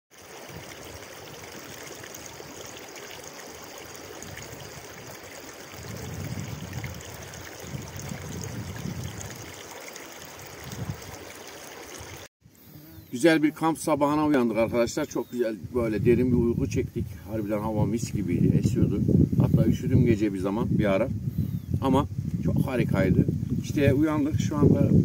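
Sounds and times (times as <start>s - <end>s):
stream water rushing: 0.1s - 12.3s.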